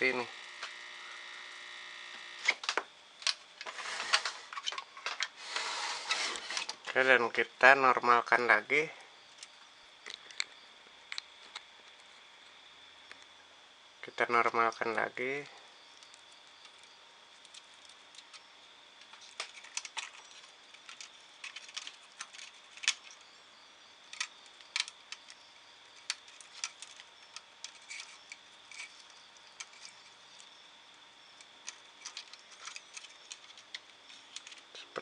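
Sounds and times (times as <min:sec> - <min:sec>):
hands handling wires clicking: 0:19.0 - 0:23.2, 0:24.1 - 0:30.5, 0:31.3 - 0:35.0.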